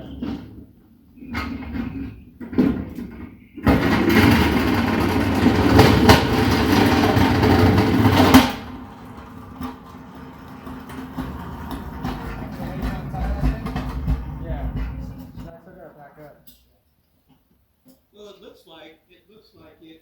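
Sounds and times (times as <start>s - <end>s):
knocks: 1.5s - 15.5s
loud mechanical rumble: 1.5s - 15.5s.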